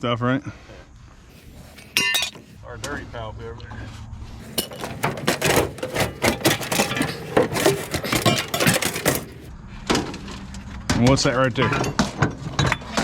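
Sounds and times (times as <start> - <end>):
scrap metal clattering: 1.3 - 2.6, 4.4 - 9.5.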